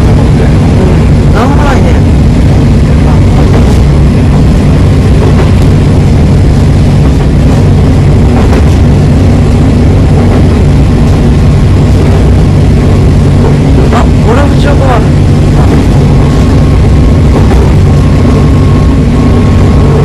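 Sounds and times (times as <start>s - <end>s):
diesel engine drone: 0.0s - 20.0s
train wheels rumbling on rails: 0.0s - 20.0s.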